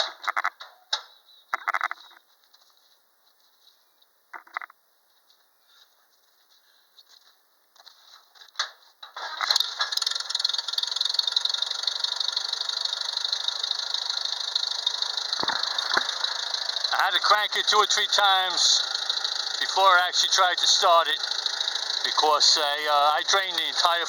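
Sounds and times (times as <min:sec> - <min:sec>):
tractor engine running: 0:09.2 - 0:24.0.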